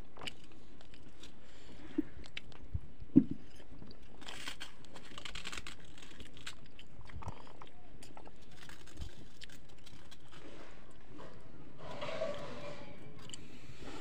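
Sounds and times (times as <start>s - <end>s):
fingers working food on steel plate: 11.2s - 13.4s.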